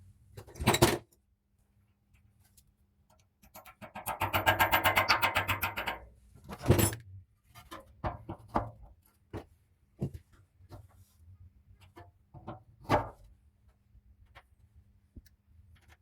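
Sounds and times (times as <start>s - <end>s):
tools tapping and clicking: 3.1s - 6.1s.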